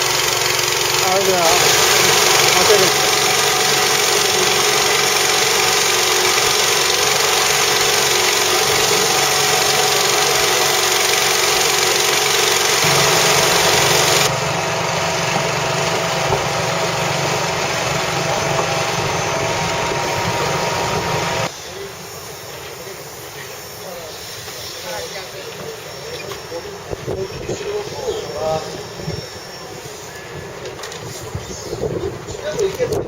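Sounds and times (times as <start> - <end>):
motor running steadily: 0.0 - 21.5.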